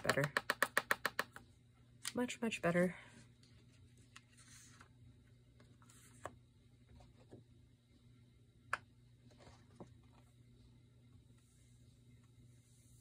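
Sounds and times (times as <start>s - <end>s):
taps and clicks of materials: 0.0s - 1.4s
faint room hum: 0.0s - 13.0s.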